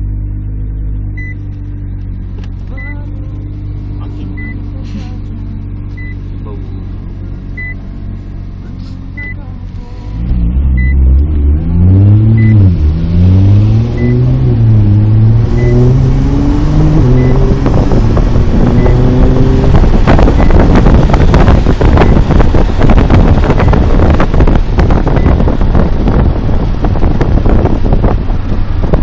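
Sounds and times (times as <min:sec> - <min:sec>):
car engine accelerating through gears: 0:00.0 - 0:29.0
faint short beep: 0:02.7 - 0:03.1, 0:04.2 - 0:04.7
loud rushing wind noise: 0:10.1 - 0:29.0.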